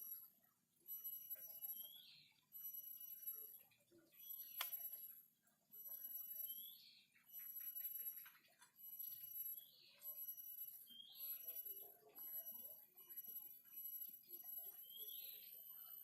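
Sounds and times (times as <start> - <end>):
faint high-pitched tones: 0.0 - 16.0
caged bird chirping: 0.9 - 5.1, 5.8 - 16.0
sharp click: 4.5 - 4.8.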